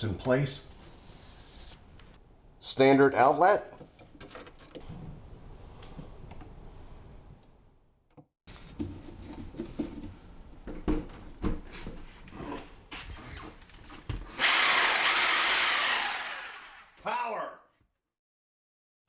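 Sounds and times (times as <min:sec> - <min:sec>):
power drill cutting wood: 0:14.3 - 0:17.0.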